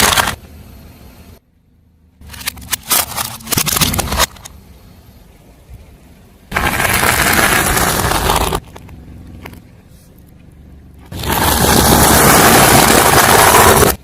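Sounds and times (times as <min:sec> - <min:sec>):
car tyre crushing brittle objects: 0:00.0 - 0:00.5, 0:02.2 - 0:04.6, 0:06.5 - 0:14.0
low car engine hum: 0:00.0 - 0:14.0.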